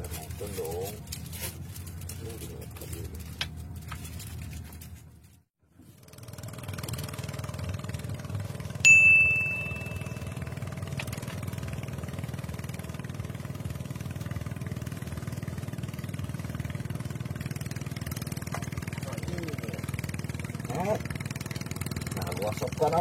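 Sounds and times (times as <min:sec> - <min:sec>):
engine running: 0:00.0 - 0:05.0, 0:05.7 - 0:23.0
bell-like ding: 0:08.8 - 0:10.6.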